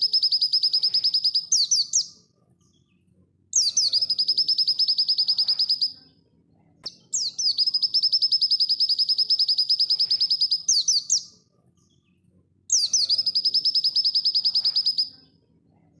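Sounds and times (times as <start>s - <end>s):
bird singing fast trills: 0.0s - 2.1s, 3.6s - 6.0s, 6.8s - 11.3s, 12.7s - 15.1s.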